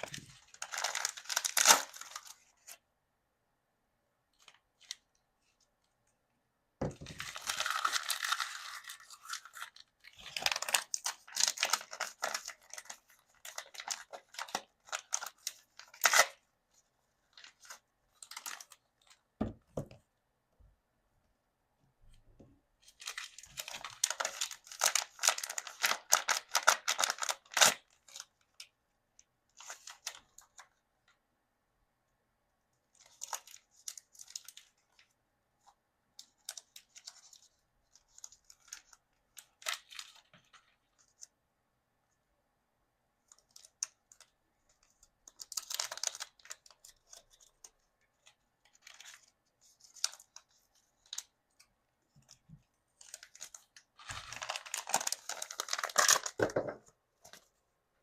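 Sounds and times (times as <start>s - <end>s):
plastic packaging crinkling and tearing: 0.0s - 2.8s, 7.0s - 16.4s, 17.3s - 19.2s, 22.9s - 28.6s, 33.0s - 35.1s, 43.3s - 51.3s, 53.0s - 56.5s.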